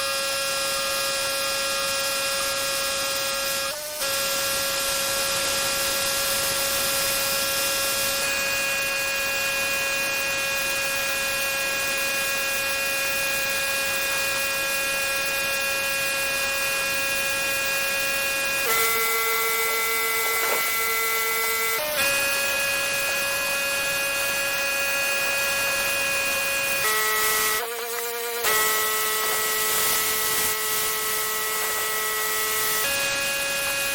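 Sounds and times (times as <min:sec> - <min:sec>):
pressure washer whine: 0:00.0 - 0:33.9
spraying water hiss: 0:29.0 - 0:32.8.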